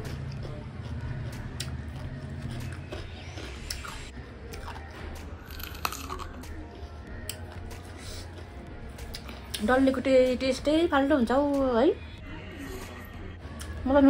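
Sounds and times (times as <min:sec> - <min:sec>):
person chewing crunchy food: 0:00.0 - 0:09.6.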